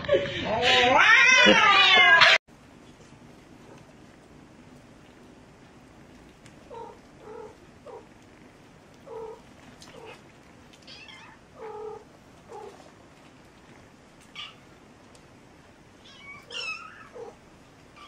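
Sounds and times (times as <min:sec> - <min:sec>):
cat meowing: 0:00.6 - 0:02.4, 0:10.9 - 0:12.8, 0:16.0 - 0:17.4
kittens mewing: 0:00.6 - 0:02.4.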